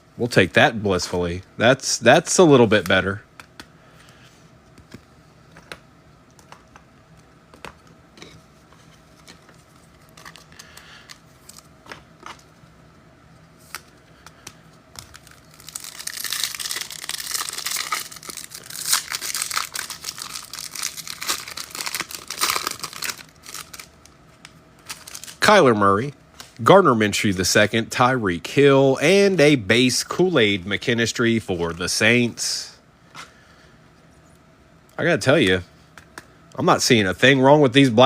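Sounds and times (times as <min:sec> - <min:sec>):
wrapper torn open and crinkled: 0:09.9 - 0:11.7, 0:15.0 - 0:23.9, 0:24.8 - 0:25.4.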